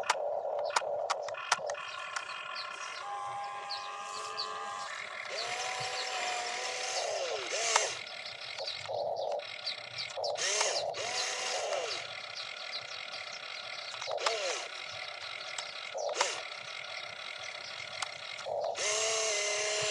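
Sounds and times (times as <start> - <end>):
sharp clicks: 0.0 - 3.0, 5.2 - 12.2, 13.8 - 16.6, 17.7 - 19.9
electric motors whining: 0.0 - 19.9.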